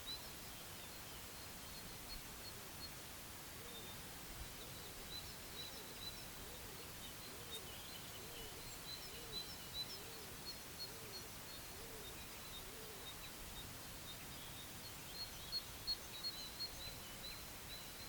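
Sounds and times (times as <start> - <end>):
birds chirping and twittering: 0.0 - 18.0.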